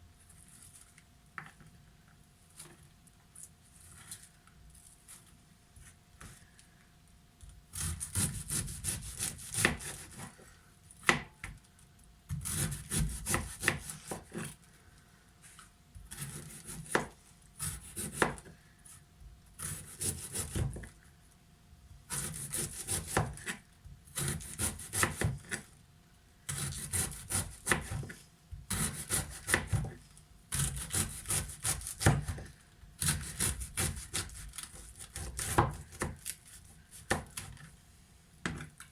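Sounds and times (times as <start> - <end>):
knife chopping on cutting board: 7.7 - 10.3, 12.3 - 14.5, 16.1 - 18.5, 19.6 - 20.9, 22.1 - 25.6, 26.5 - 28.1, 28.7 - 36.3, 36.9 - 37.6.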